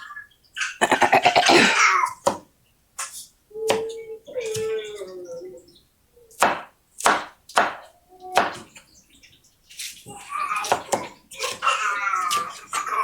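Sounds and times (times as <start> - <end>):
knife chopping on cutting board: 6.4 - 8.7, 10.6 - 11.7.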